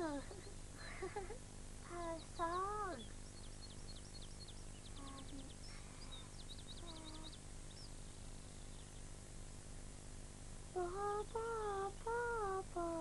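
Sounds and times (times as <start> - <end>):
birds chirping and trilling: 0.0 - 9.2
low hum and hiss: 0.0 - 13.0.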